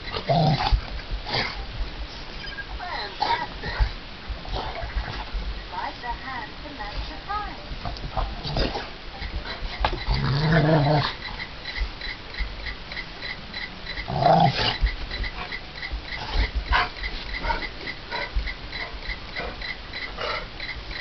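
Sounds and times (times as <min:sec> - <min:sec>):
dogs growling: 0:00.0 - 0:01.7, 0:02.8 - 0:05.4, 0:08.0 - 0:11.4, 0:13.9 - 0:20.8
dogs yelping: 0:08.2 - 0:21.0.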